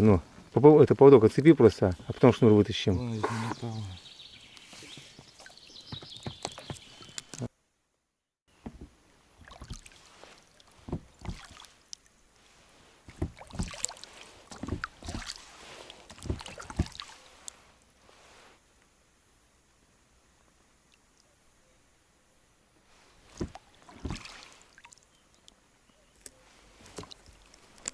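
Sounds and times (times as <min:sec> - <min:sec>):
gear knocking and rustling in boat: 0:04.9 - 0:07.5, 0:10.8 - 0:11.5, 0:13.1 - 0:13.8, 0:14.5 - 0:15.4, 0:16.0 - 0:17.1, 0:23.3 - 0:24.3.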